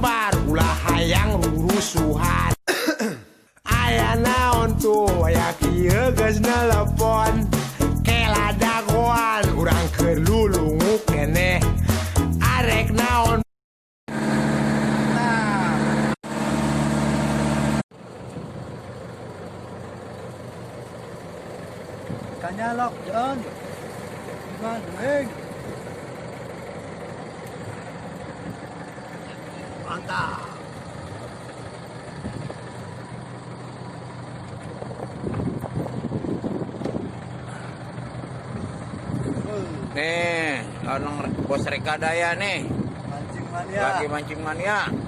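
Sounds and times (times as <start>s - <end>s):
intro music: 0.0s - 2.6s, 3.7s - 13.4s
boat engine running: 14.1s - 45.0s.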